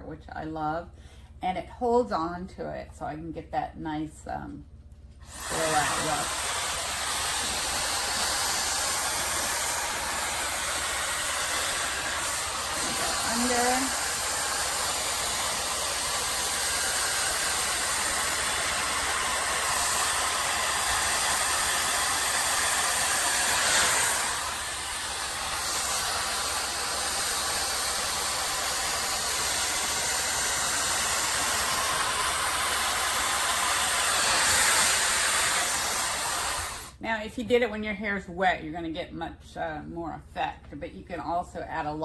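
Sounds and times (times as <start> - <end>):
hot air brush blowing: 5.2 - 37.0.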